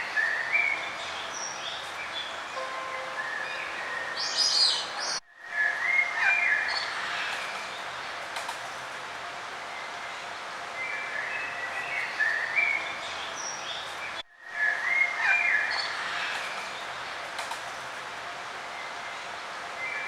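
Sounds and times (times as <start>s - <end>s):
songbirds chirping and warbling: 0.0s - 8.1s, 9.6s - 17.2s
outdoor background hiss: 0.0s - 20.0s.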